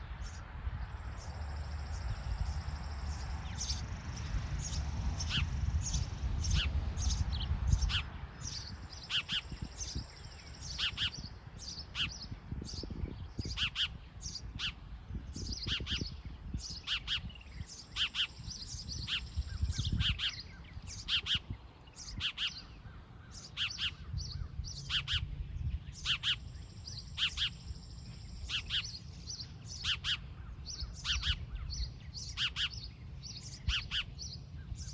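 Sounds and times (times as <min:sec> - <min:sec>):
birds chirping: 0:00.0 - 0:34.9.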